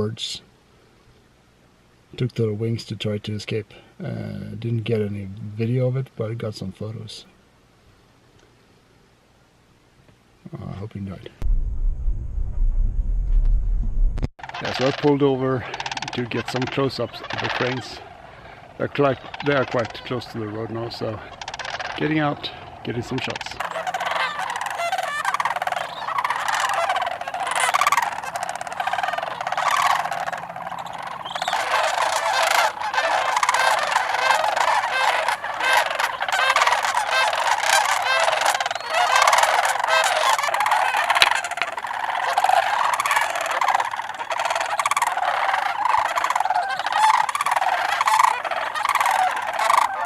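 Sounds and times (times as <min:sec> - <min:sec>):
cranes calling: 0:14.4 - 0:50.0.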